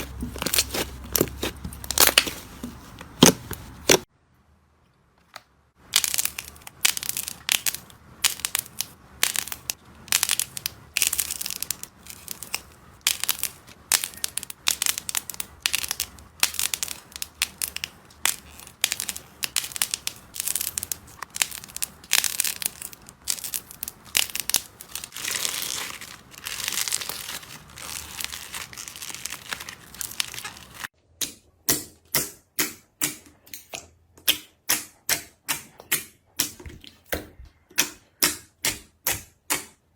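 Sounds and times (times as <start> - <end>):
slime crackling and popping: 0.0 - 4.1, 5.8 - 30.9.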